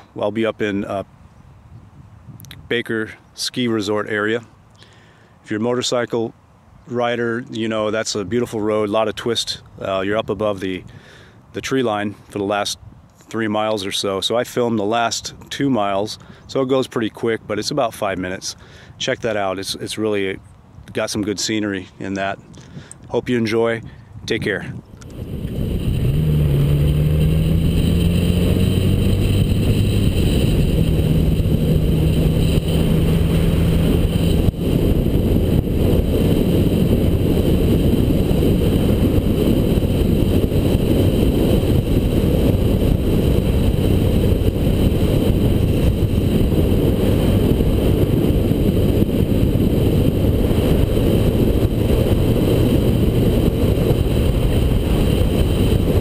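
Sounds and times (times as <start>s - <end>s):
wind on microphone: 0.0s - 3.1s, 18.6s - 56.0s
motorcycle engine running: 25.2s - 56.0s.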